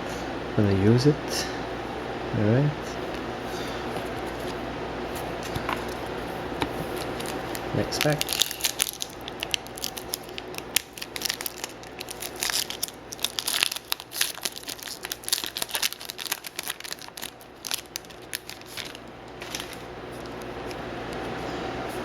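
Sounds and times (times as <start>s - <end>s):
foil pack tearing and crinkling: 6.8s - 21.2s.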